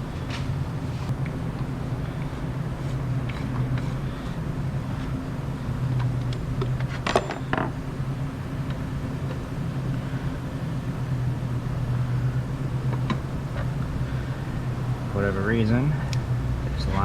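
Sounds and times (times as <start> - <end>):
shop machinery hum: 0.0 - 17.0.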